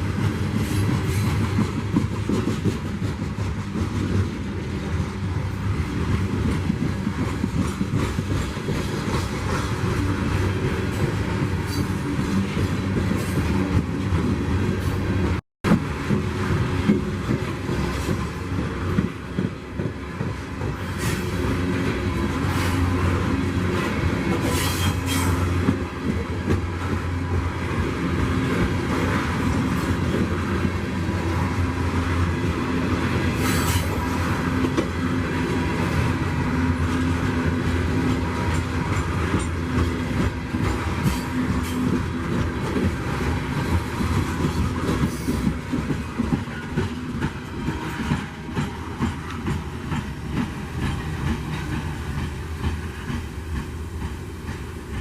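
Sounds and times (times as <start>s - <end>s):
train wheels clacking over rail joints: 0.0s - 55.0s.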